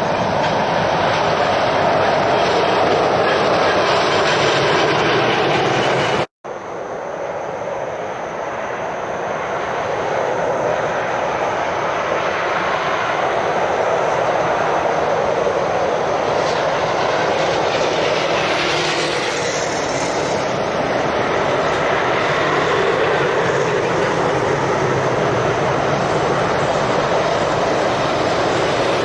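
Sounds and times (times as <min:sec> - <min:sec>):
heavy lorries passing: 0:10.0 - 0:29.0.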